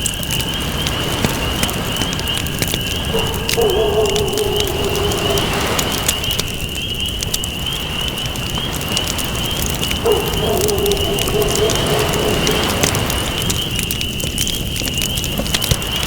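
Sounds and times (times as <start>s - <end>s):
campfire crackling and popping: 0.0s - 16.0s
dove cooing: 1.2s - 6.8s, 9.1s - 13.9s.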